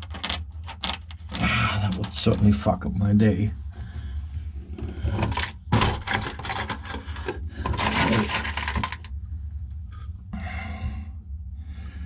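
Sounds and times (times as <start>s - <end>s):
metal nuts and washers clinking: 0.0s - 2.2s
steady low hum: 0.2s - 12.0s.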